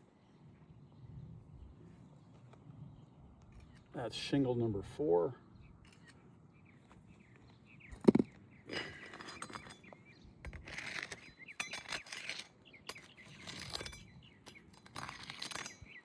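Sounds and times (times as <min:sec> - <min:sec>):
pry bar scraping shingles: 0:08.0 - 0:16.0.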